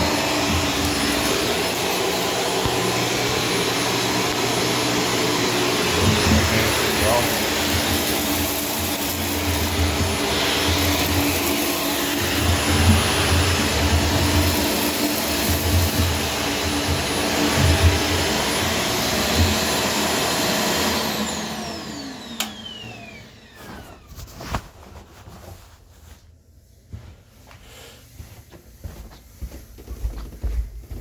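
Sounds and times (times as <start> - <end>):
motor whine spinning down: 0.0 - 24.1
vacuum cleaner running: 0.0 - 24.5
vacuum cleaner switch click: 22.2 - 23.1.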